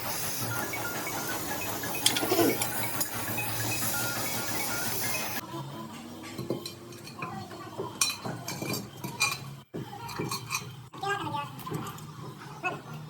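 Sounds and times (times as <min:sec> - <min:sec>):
metal tools clinking: 0:02.0 - 0:04.0.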